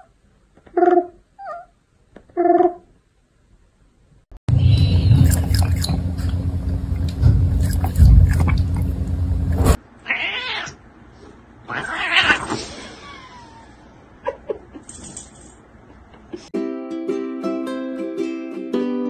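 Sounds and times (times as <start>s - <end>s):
loud low noise with clicks: 4.7s - 9.8s
cat meowing: 10.0s - 10.8s, 11.7s - 12.6s.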